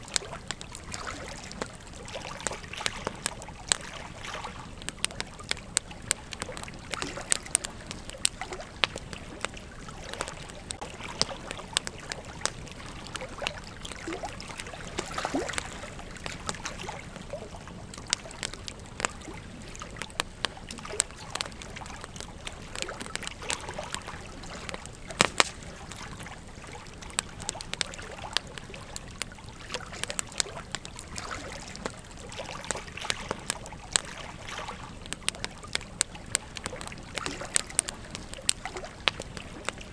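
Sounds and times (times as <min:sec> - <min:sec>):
campfire crackling and popping: 0:00.0 - 0:39.9
fire hissing: 0:15.9 - 0:27.8.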